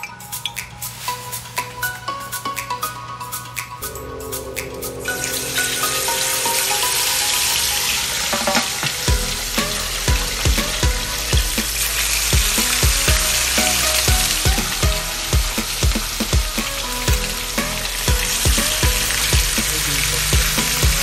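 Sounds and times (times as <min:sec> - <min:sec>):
chicken frying in oil: 0:05.2 - 0:21.0
dance music with steady beat: 0:08.4 - 0:21.0.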